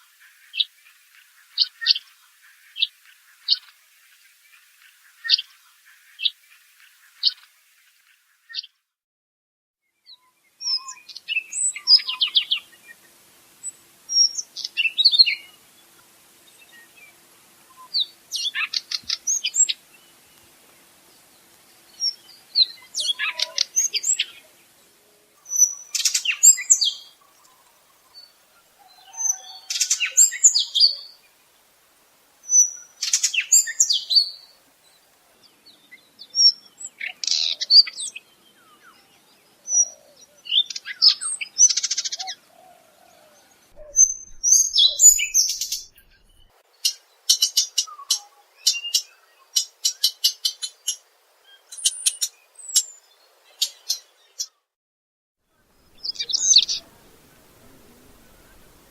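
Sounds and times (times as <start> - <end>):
bird singing scratchy twittering song: 9.9 - 31.4, 32.4 - 54.6, 55.5 - 58.9.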